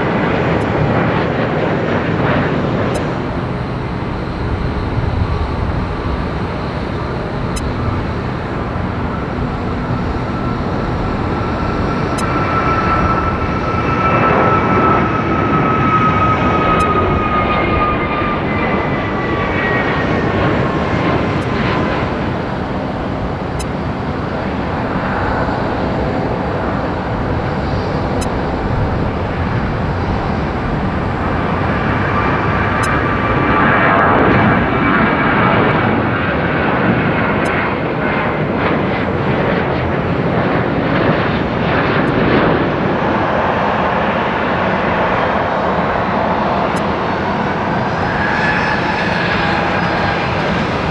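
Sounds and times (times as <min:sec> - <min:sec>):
jet airliner engines: 0:00.0 - 0:50.9
second jet passing: 0:02.8 - 0:18.4, 0:21.0 - 0:36.6, 0:42.8 - 0:50.9.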